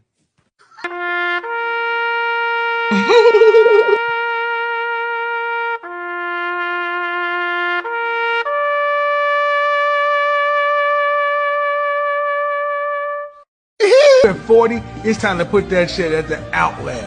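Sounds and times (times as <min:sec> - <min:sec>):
brass long notes: 0:00.8 - 0:13.4.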